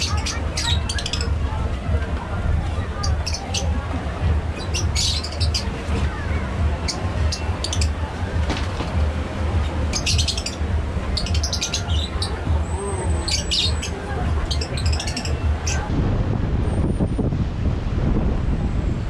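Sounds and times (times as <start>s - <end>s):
birds chirping: 0.0s - 15.9s
low rumble: 14.2s - 19.0s.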